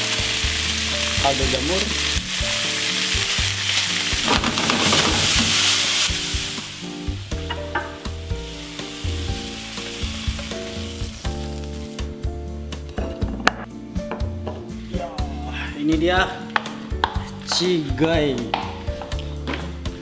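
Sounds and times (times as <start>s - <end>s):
food sizzling in a hot pan: 0.0s - 12.3s
background music: 0.0s - 20.0s.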